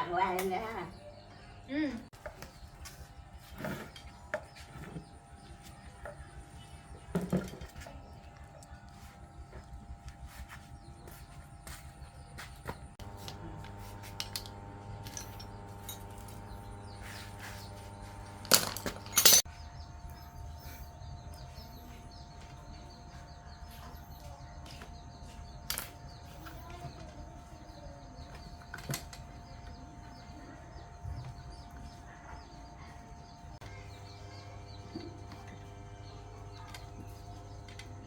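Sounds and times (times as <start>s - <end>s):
electric hum: 13.0s - 19.4s.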